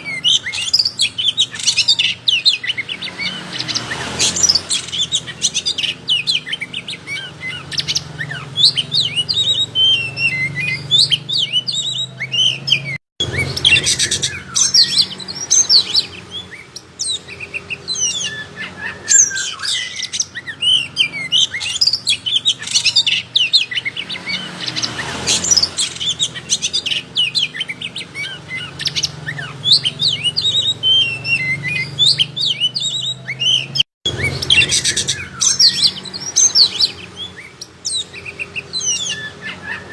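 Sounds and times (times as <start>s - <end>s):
songbird whistles and trills: 0.0s - 39.9s.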